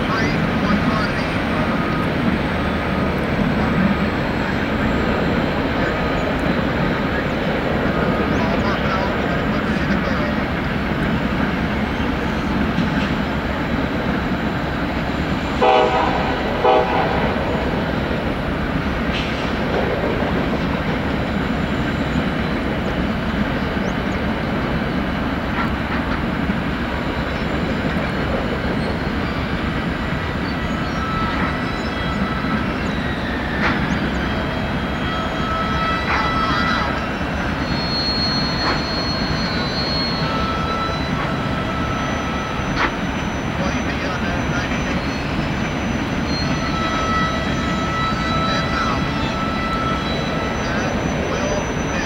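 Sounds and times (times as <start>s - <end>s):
train wheels rumbling on rail: 0.0s - 52.0s
locomotive horn toots: 15.4s - 19.2s, 30.6s - 52.0s.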